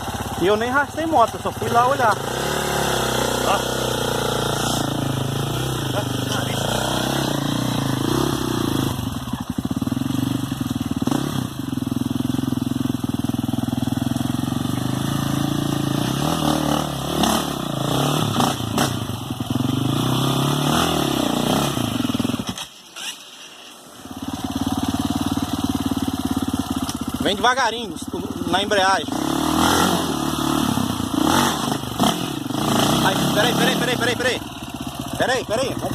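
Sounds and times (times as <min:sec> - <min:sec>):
motorcycle engine revving: 0:00.0 - 0:23.2, 0:24.0 - 0:35.9.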